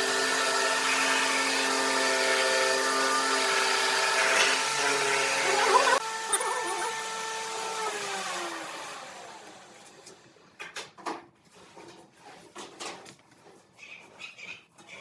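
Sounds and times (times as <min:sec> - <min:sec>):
electric motor spinning down: 0:03.3 - 0:10.1.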